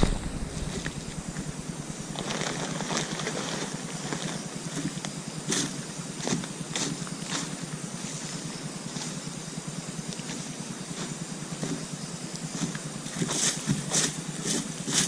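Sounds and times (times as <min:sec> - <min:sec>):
rustles and knocks: 0:00.0 - 0:01.6
motor humming: 0:00.0 - 0:13.2.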